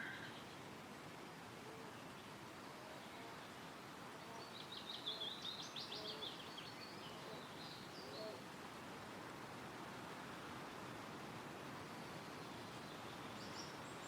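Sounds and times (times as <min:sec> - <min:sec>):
songbird singing: 0:00.0 - 0:00.8, 0:01.6 - 0:08.6, 0:10.6 - 0:14.0
wind rustling through trees: 0:00.0 - 0:14.0.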